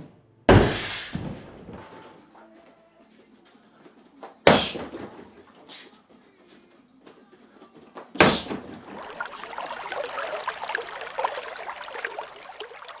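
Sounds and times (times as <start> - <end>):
sharp thump: 8.2 - 8.8.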